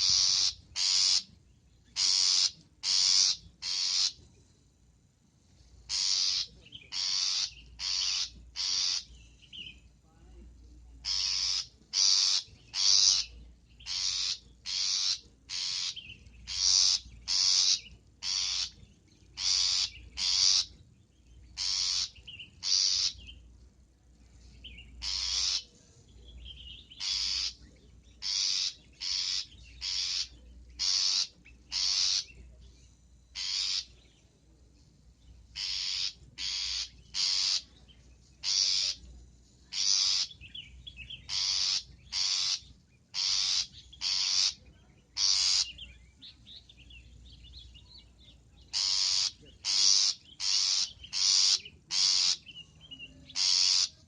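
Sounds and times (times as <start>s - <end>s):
shrike harsh calls: 0.0s - 1.3s, 5.9s - 9.2s, 11.0s - 18.8s, 21.6s - 23.2s, 25.0s - 25.7s, 27.0s - 27.6s, 28.2s - 32.4s, 33.3s - 34.0s, 35.6s - 37.7s, 38.4s - 39.1s, 48.8s - 52.4s, 53.3s - 54.0s.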